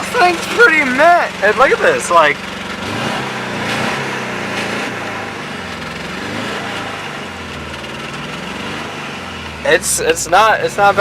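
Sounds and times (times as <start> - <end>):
car engine idling with exhaust leak: 0.0 - 11.0.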